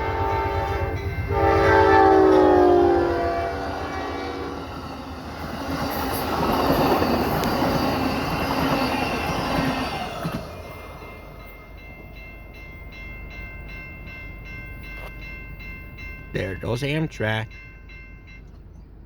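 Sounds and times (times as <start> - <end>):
train horn: 0.0 - 5.1
train passing with rushing roar: 0.0 - 19.0.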